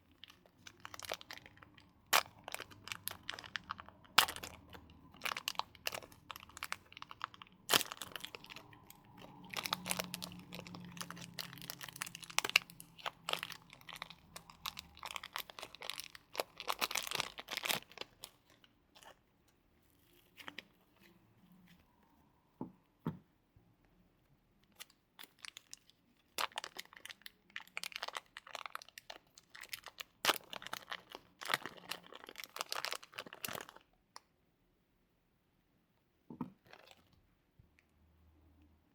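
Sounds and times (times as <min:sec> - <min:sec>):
slime squeezed by hand crackling: 0:00.1 - 0:19.2.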